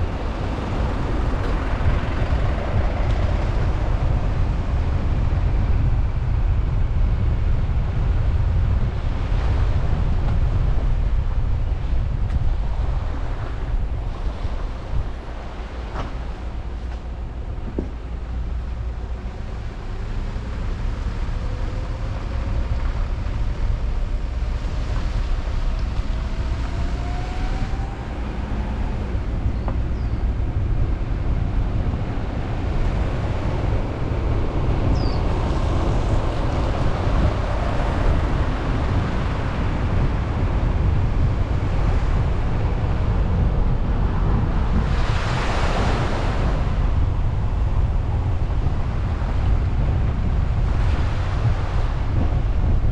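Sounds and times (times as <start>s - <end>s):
car road and wind noise: 0.0s - 52.9s
car engine rising: 12.2s - 49.9s.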